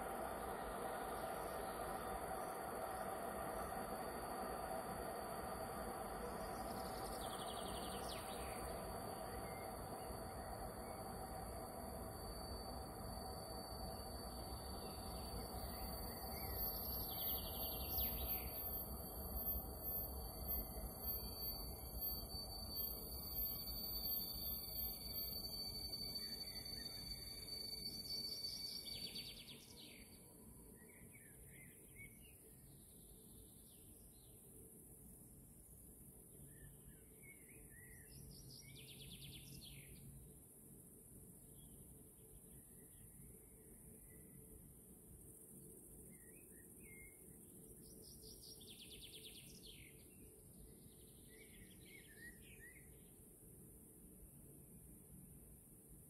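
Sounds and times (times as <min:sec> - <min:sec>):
steady low hum: 0:00.0 - 0:28.3
high-pitched whine: 0:00.0 - 0:30.1
steady high hiss: 0:00.0 - 0:30.1
songbird chirps and trills: 0:00.0 - 0:34.5, 0:45.6 - 0:53.7
outdoor background noise: 0:00.0 - 0:56.0.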